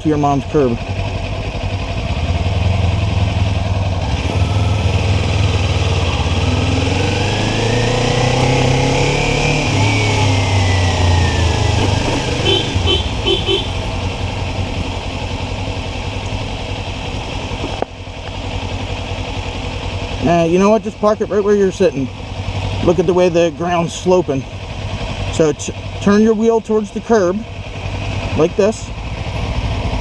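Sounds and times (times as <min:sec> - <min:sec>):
motorcycle engine at low speed: 0:00.0 - 0:30.0
rising and falling whine: 0:04.0 - 0:14.8.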